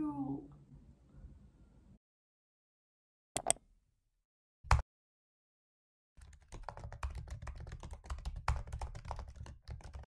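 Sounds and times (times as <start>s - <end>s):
keyboard typing: 3.4s - 3.6s, 6.2s - 10.0s.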